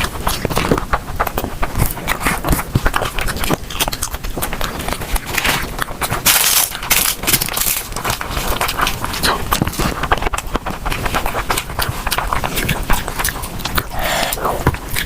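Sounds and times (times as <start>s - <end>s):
chewing and crunching food: 0.0s - 15.0s
wet mouth clicks: 0.0s - 15.0s.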